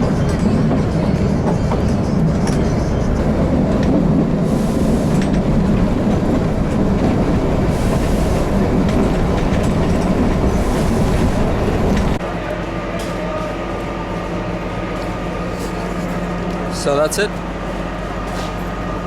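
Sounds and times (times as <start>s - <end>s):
train rumbling on rails: 0.0s - 19.0s
train hiss: 4.4s - 5.3s, 7.6s - 8.8s.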